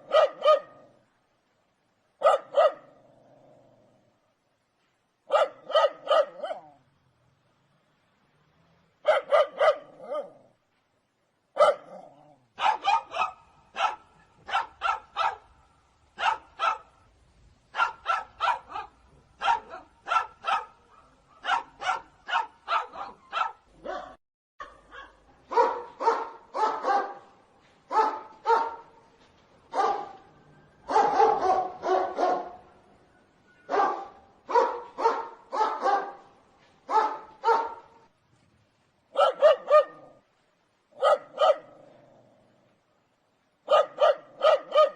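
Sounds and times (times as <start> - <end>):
dog barking: 0.0 - 0.9, 2.2 - 2.9, 5.3 - 6.8, 9.0 - 10.4, 11.6 - 15.5, 16.2 - 17.0, 17.7 - 27.3, 27.9 - 28.9, 29.7 - 30.2, 30.9 - 32.6, 33.7 - 36.3, 36.9 - 38.0, 39.1 - 40.2, 41.0 - 41.8, 43.6 - 44.9.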